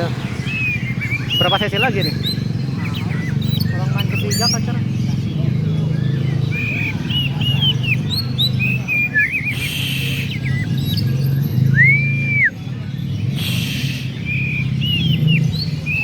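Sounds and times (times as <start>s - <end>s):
songbirds chirping and trilling: 0.0s - 16.0s
long arched bird whistle: 6.0s - 12.7s, 13.3s - 16.0s
short hissing bursts: 13.4s - 14.1s.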